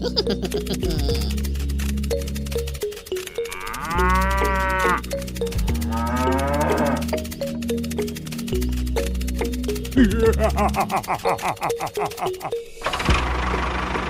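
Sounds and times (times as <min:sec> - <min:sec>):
music with repeating beat: 0:00.0 - 0:12.8
cow mooing: 0:03.2 - 0:07.3.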